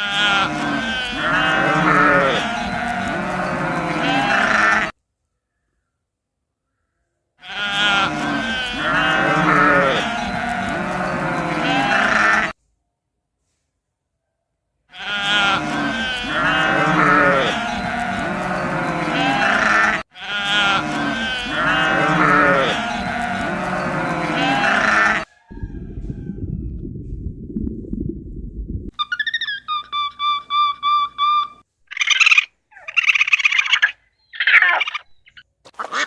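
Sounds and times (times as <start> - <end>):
sheep bleating: 0.0 - 4.9, 7.4 - 12.6, 14.9 - 25.3
low rumbling: 25.5 - 29.0.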